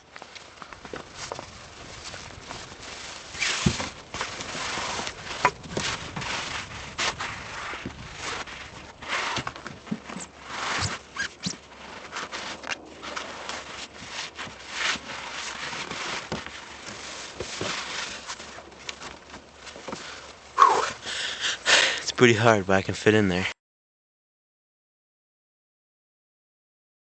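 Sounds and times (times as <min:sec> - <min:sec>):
footsteps crunching in snow: 0:00.0 - 0:22.6.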